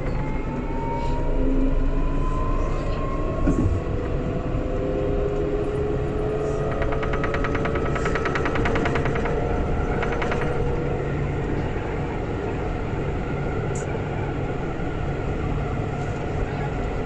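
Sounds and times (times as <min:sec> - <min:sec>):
tram rolling rumble: 0:00.0 - 0:17.0
tram traction drive whining: 0:00.0 - 0:17.0
rapid rattling pulse: 0:06.6 - 0:10.9.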